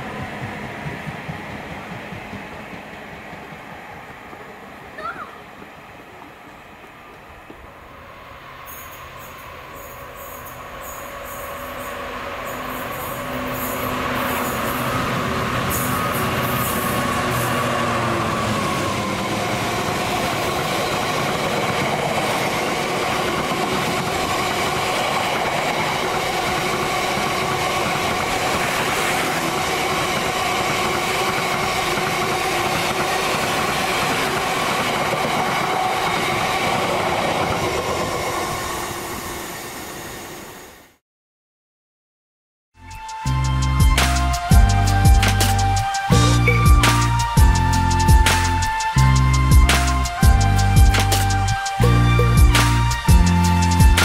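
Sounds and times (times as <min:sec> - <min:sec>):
train wheels rolling on rails: 0:00.0 - 0:40.8
train whine: 0:00.0 - 0:41.0, 0:42.8 - 0:54.0.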